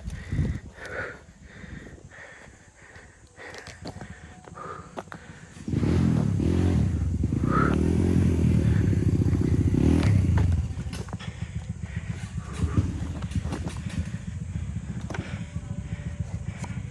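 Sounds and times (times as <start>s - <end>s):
motorcycle engine revving: 4.0s - 16.9s.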